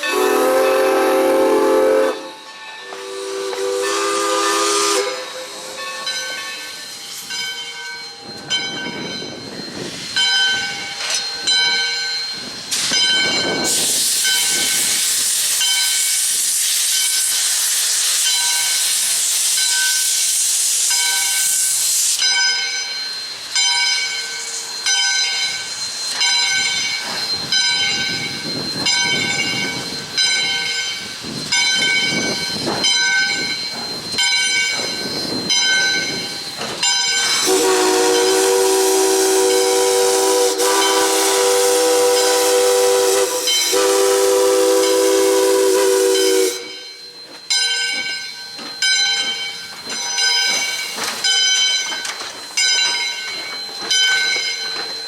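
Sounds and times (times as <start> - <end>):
steam whistle blast: 0.0 - 5.8, 37.4 - 46.8
hissing steam: 0.0 - 7.7, 9.3 - 23.6, 24.2 - 47.4
locomotive bell ringing: 0.0 - 16.2, 20.9 - 55.0.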